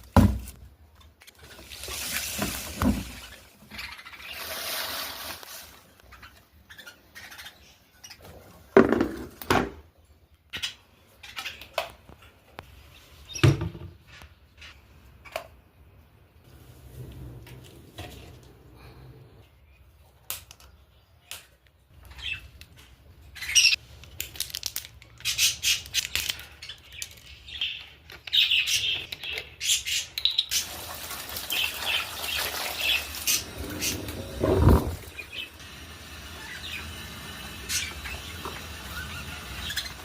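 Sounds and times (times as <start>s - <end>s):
budgerigars chirping and squawking: 6.1s - 8.4s, 37.6s - 40.0s.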